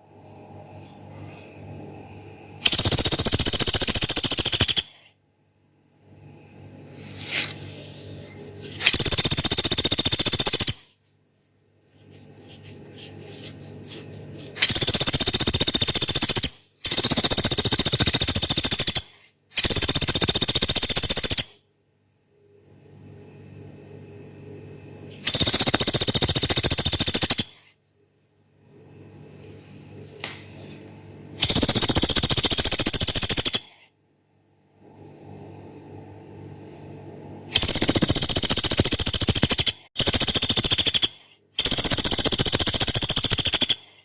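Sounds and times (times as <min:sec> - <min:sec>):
woodpecker rattling calls: 0:02.6 - 0:05.0, 0:08.8 - 0:10.8, 0:14.5 - 0:21.5, 0:25.3 - 0:27.6, 0:31.4 - 0:33.7, 0:37.6 - 0:43.9.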